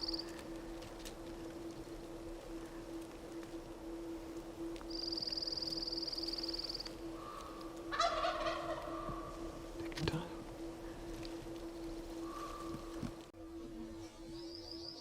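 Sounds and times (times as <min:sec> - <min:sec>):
turkey gobbling: 0:07.2 - 0:09.6.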